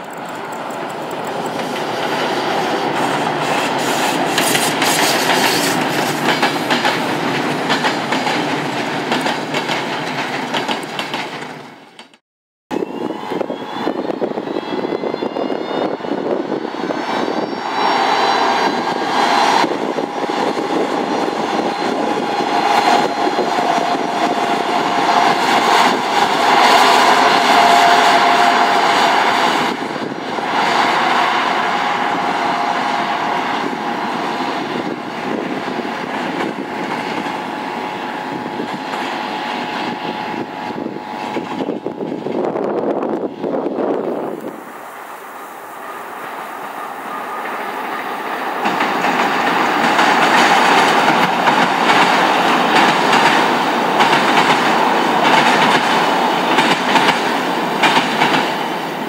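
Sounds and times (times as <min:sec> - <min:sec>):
electric locomotive whine: 0:00.0 - 0:12.0, 0:12.7 - 0:59.0
train wheels clattering over rails: 0:00.0 - 0:12.2, 0:17.9 - 0:40.0, 0:46.2 - 0:59.0.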